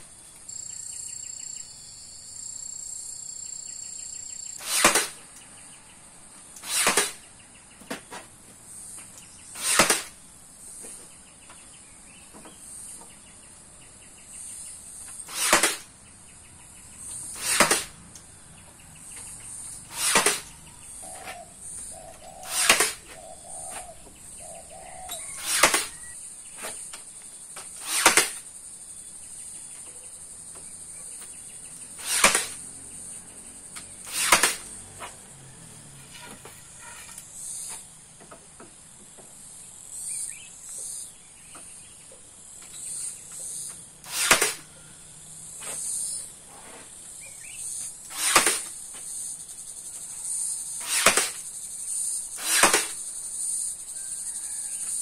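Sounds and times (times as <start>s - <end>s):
sharp whooshes: 4.6s - 5.2s, 6.6s - 7.2s, 19.9s - 20.5s, 22.4s - 23.1s, 25.2s - 26.1s, 32.0s - 32.6s, 34.0s - 34.7s, 44.0s - 44.6s, 48.1s - 48.7s, 50.8s - 51.4s.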